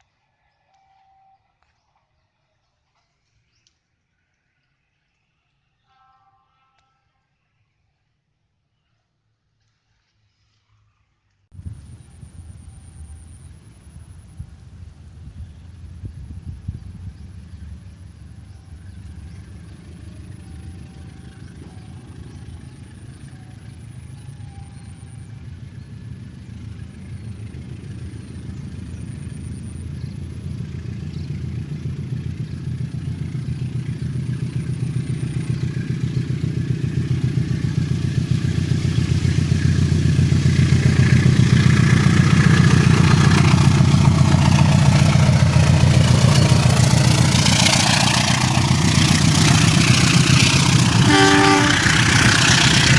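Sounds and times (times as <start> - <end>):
diesel locomotive engine drone: 11.5 - 52.9
wheels on rails: 11.6 - 52.9.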